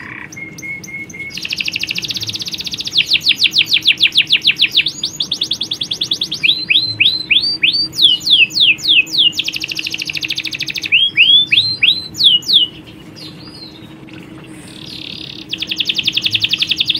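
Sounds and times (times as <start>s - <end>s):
canaries singing trills: 0.0s - 16.9s.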